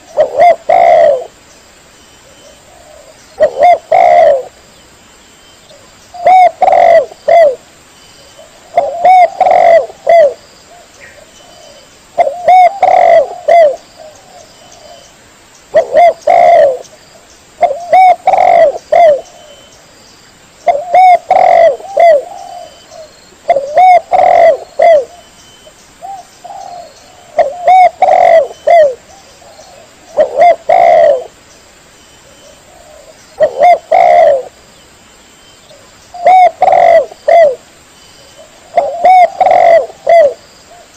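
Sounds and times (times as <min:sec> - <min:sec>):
dove cooing: 0:00.0 - 0:01.4, 0:02.2 - 0:04.6, 0:05.7 - 0:07.6, 0:08.3 - 0:15.1, 0:15.7 - 0:16.9, 0:17.6 - 0:19.7, 0:20.6 - 0:25.3, 0:26.0 - 0:31.4, 0:32.2 - 0:34.6, 0:35.7 - 0:37.6, 0:38.2 - 0:40.9.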